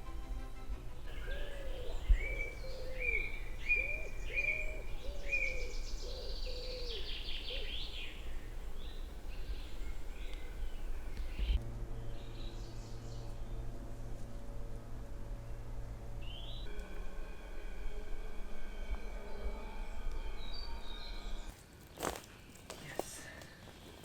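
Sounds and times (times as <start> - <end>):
steady low rumble: 0.0 - 21.5
bird trill: 1.0 - 13.3
birds whistling: 1.1 - 11.6.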